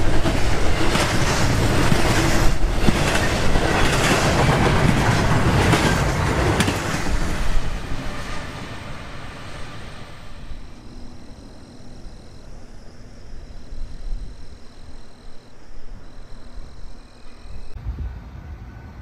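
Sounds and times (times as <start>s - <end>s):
outdoor background noise: 0.0s - 19.0s
passing train: 0.0s - 19.0s.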